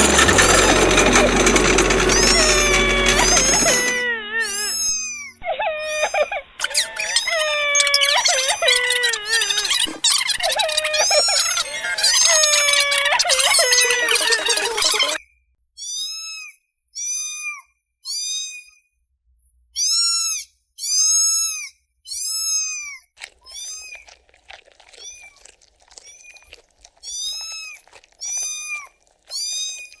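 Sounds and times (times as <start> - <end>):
kittens mewing: 0.0 - 15.2.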